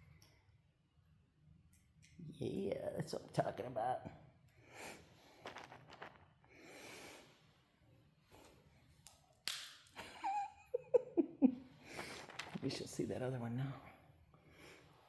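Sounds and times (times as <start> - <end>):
soft breaths or sniffs: 4.6 - 8.8, 11.8 - 12.5, 14.4 - 15.0.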